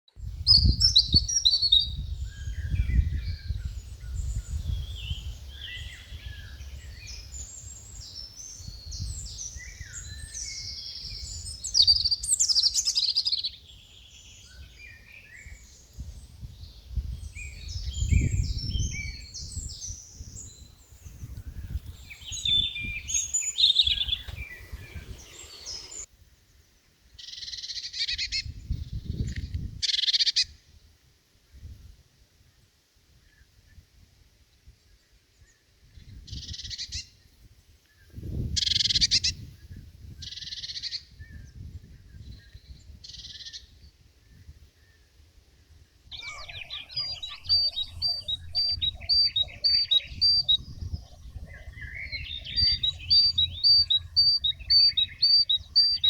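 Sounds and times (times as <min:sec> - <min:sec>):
birds chirping and singing: 0:00.5 - 0:26.1, 0:46.1 - 0:56.0.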